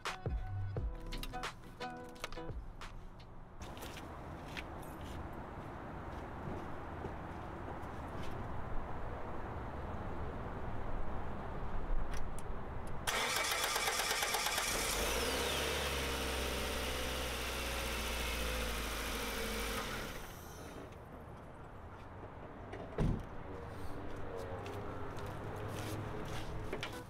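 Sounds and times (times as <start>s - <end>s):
car starter cranking: 13.1s - 15.6s.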